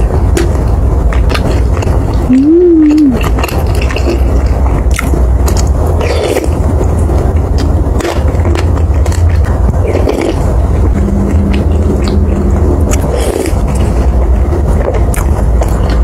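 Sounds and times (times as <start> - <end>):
mouth clicks and smacks: 0.0 - 6.6, 12.9 - 16.0
low hum: 0.0 - 16.0
wet chewing: 0.0 - 16.0.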